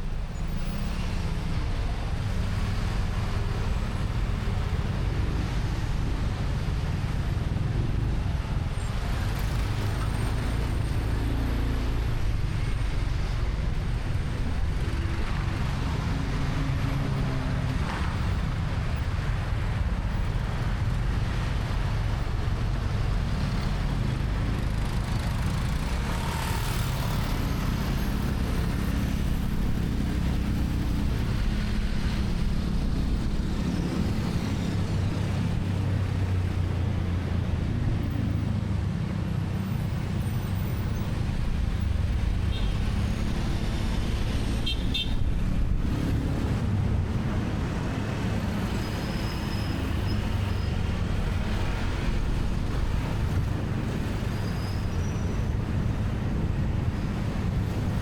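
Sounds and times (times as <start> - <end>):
road noise: 0.0 - 58.0.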